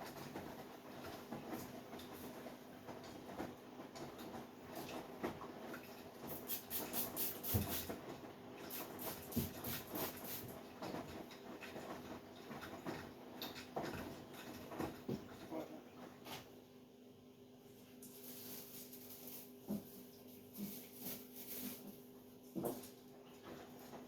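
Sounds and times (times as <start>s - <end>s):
washing machine motor hum: 0.0s - 24.0s
wet laundry sloshing in drum: 7.5s - 16.6s, 18.2s - 24.0s.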